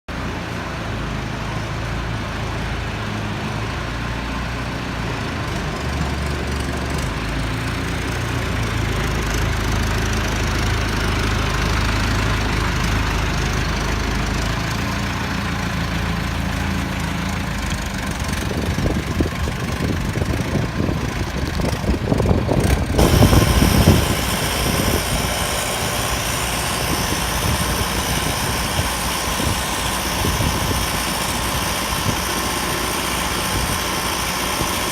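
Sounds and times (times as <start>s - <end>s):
forklift engine running: 0.1s - 34.9s.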